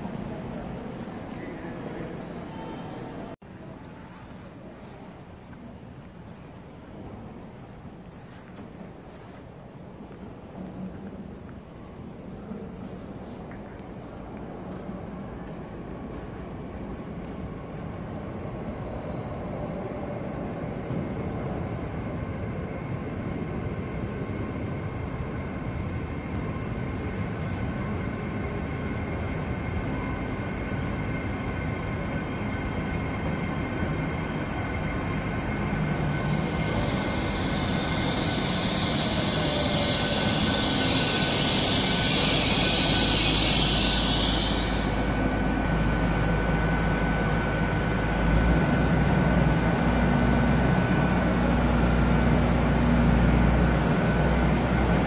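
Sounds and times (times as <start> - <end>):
train braking into platform: 0.0 - 55.0
loud high hiss: 35.6 - 48.1.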